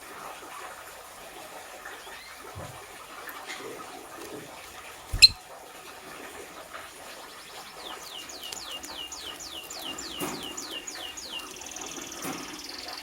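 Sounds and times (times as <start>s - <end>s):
lovebird chirping: 5.2s - 5.4s.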